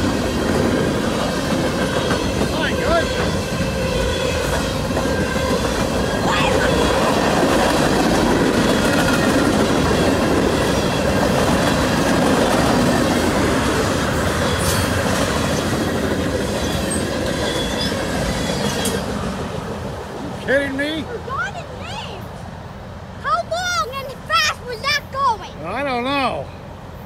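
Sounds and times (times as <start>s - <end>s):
train wheels rumbling on rails: 0.0s - 22.6s
thin wheel squeal: 16.6s - 19.0s.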